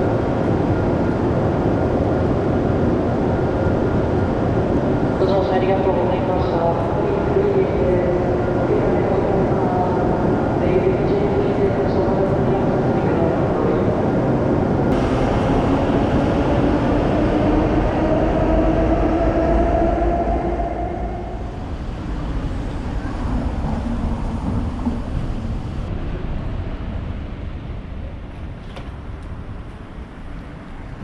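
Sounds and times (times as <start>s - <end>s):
train wheels rumbling: 14.7s - 26.4s.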